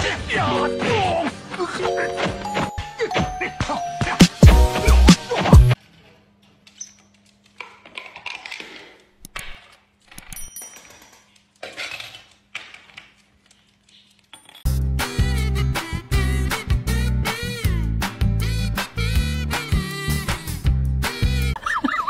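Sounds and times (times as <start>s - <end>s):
coin clinking on tabletop: 10.2s - 11.4s.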